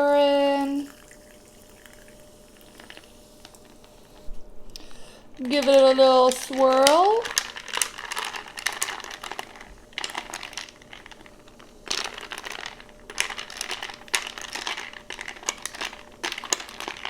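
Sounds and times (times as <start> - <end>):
sparkling water fizzing: 0.0 - 4.3, 5.4 - 17.0
ice cubes clinking against glass: 5.4 - 17.0.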